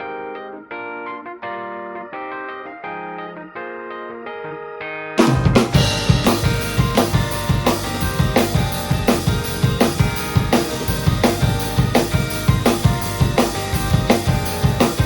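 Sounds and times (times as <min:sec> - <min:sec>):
drum kit beat: 0:05.2 - 0:15.0
pop-rock band track: 0:05.2 - 0:15.0.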